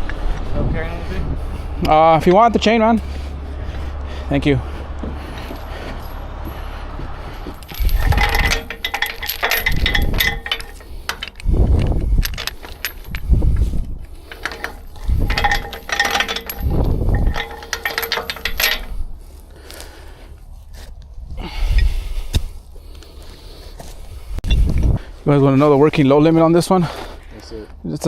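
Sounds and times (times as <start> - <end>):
metal chain rattling: 7.4 - 19.4.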